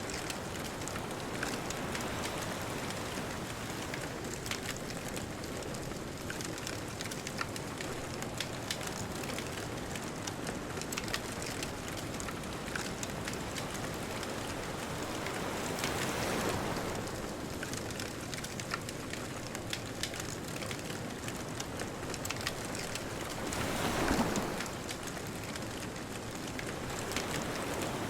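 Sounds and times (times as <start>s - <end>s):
distant ocean surf: 0.0s - 5.5s, 11.2s - 18.6s, 20.9s - 28.0s
bonfire crackling and popping: 0.1s - 28.0s.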